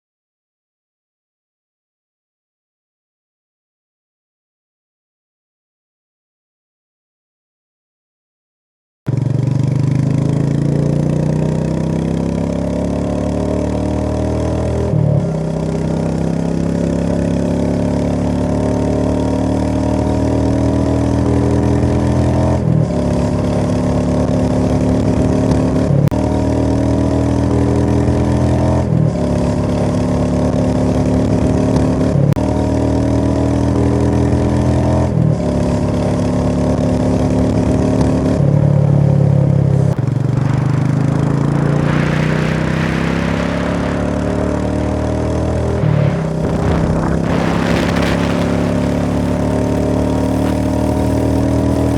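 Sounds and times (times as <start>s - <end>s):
vehicle engine accelerating: 9.1s - 38.4s, 39.4s - 51.9s.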